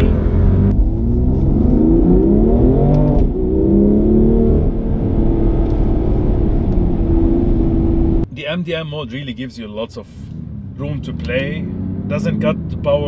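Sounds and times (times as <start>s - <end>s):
car engine accelerating hard: 0.0s - 8.2s.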